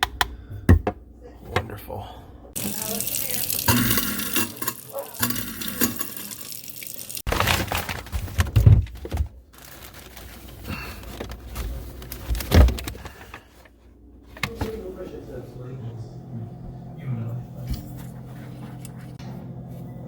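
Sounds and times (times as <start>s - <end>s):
faucet running into sink: 2.6s - 7.3s.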